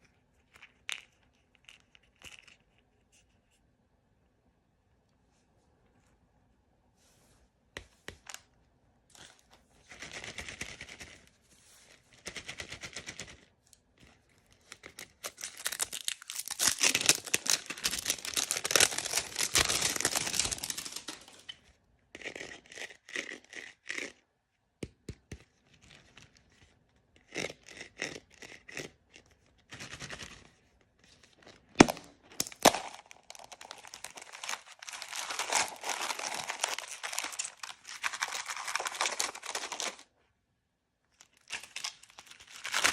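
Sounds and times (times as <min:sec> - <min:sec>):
packaging crinkling and tearing: 0:14.9 - 0:21.6, 0:31.8 - 0:40.1, 0:41.2 - 0:42.9.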